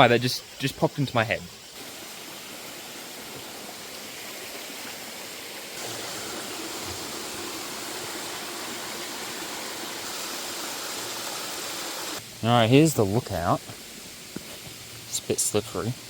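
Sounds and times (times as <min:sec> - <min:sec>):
stream water rushing: 0:01.6 - 0:12.2.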